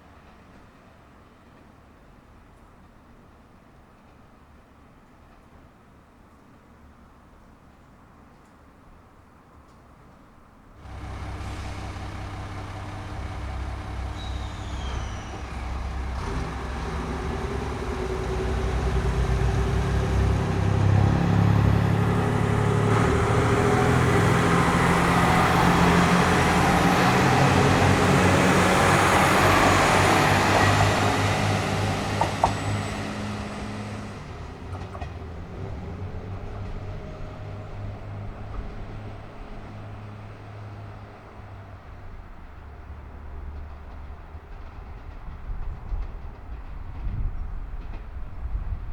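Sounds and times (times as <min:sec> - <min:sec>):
diesel train engines under load: 0:10.8 - 0:48.9.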